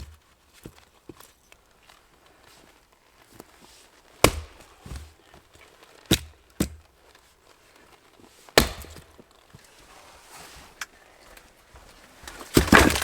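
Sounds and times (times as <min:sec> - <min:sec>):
sharp knocks with dull thuds: 0:04.2 - 0:05.1, 0:06.1 - 0:06.9, 0:08.6 - 0:09.3.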